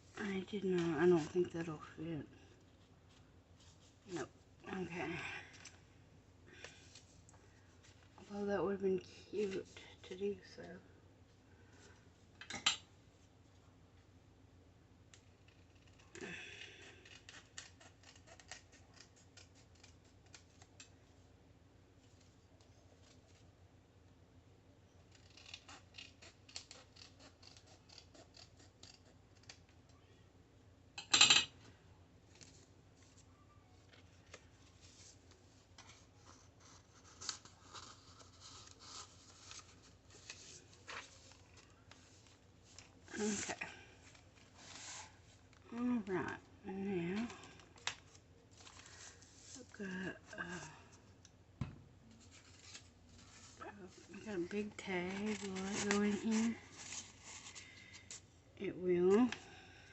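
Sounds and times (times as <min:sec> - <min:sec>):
scissors snipping paper: 0:17.0 - 0:20.9, 0:25.1 - 0:29.7, 0:55.0 - 0:57.1
paper rustle: 0:32.3 - 0:45.6, 0:47.2 - 0:49.7, 0:52.1 - 0:58.3.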